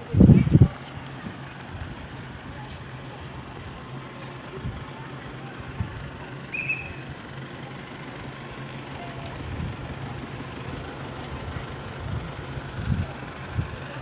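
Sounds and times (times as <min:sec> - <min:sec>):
vehicle engine hum: 0:00.0 - 0:14.0.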